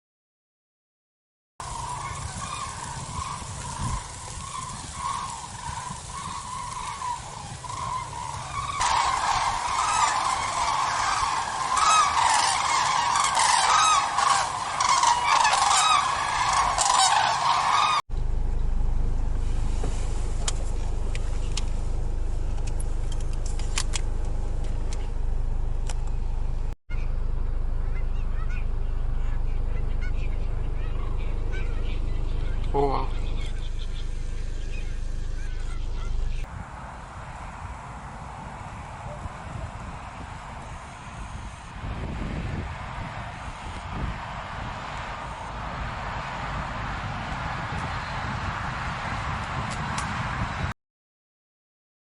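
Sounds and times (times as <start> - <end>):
geese honking: 1.6 - 18.0, 29.2 - 36.5
low rumble: 18.1 - 50.7.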